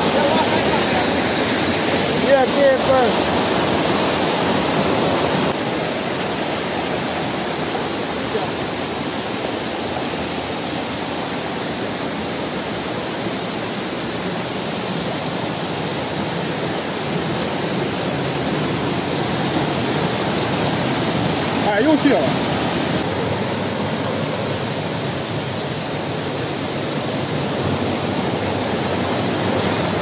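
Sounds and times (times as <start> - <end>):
river waterfall rushing: 0.0 - 30.0.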